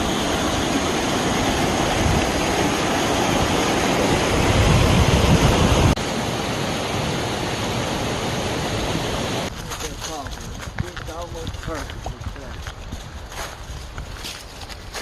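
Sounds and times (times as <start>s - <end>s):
rushing water: 0.0s - 9.5s.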